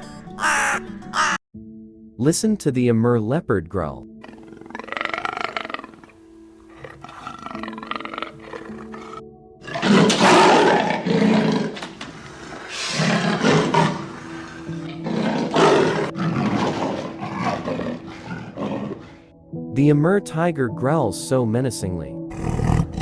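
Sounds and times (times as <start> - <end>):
background music: 0.0 - 23.0
leopard growling: 4.2 - 19.3, 22.3 - 23.0.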